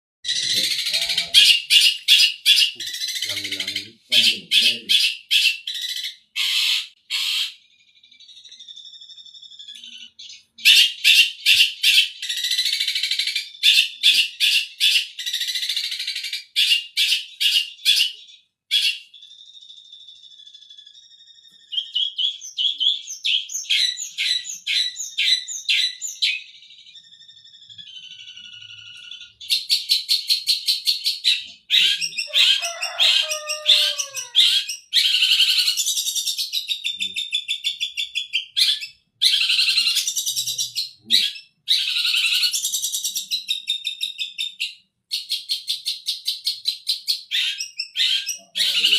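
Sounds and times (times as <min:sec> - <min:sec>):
bird sharp repeated notes: 0:00.2 - 0:48.9
soft bird warbling: 0:31.8 - 0:34.5.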